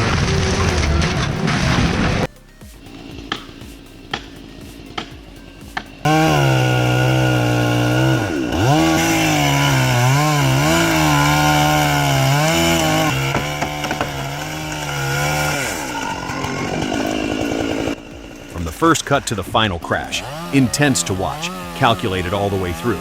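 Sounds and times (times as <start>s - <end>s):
chainsaw engine running: 0.0s - 23.0s.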